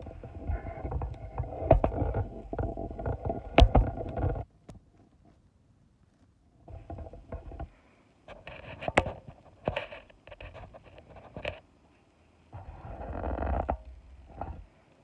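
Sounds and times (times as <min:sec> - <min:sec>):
rustling and handling noise: 0:00.0 - 0:15.0
sharp clicks and knocks: 0:00.8 - 0:04.8.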